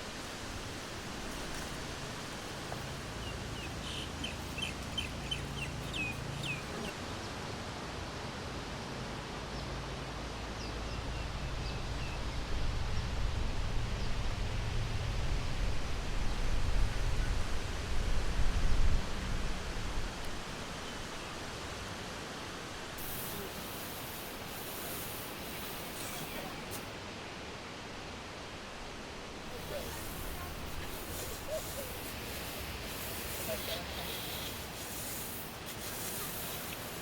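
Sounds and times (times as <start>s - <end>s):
steady outdoor hiss: 0.0s - 37.0s
bird chirping: 2.8s - 6.9s.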